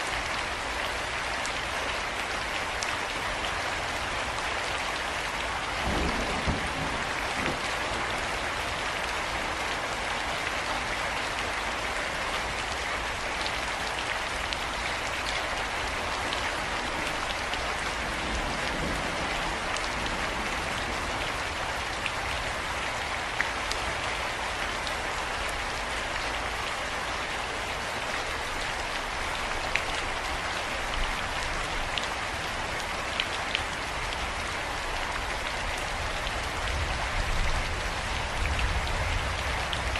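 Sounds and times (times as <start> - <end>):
steady rain hiss: 0.0 - 39.9
raindrops ticking on hard surface: 5.3 - 9.6, 27.8 - 39.9.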